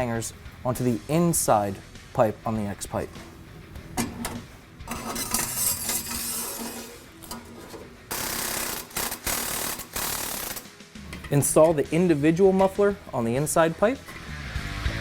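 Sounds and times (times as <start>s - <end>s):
metal pipes knocking and scraping: 3.1s - 8.2s.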